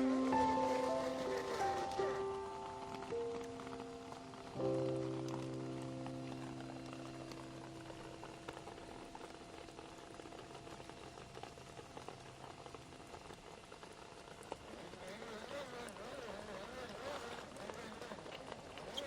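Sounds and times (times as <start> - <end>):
held musical chord: 0.0 - 8.0
rain pattering: 0.0 - 19.0.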